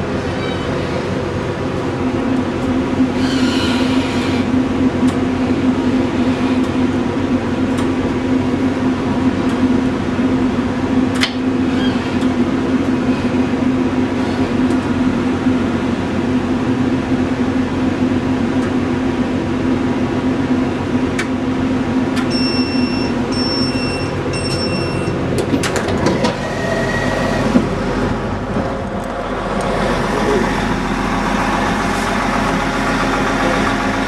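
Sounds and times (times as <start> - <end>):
diesel engine drone: 0.0 - 34.0
short electronic beeps: 22.3 - 25.2.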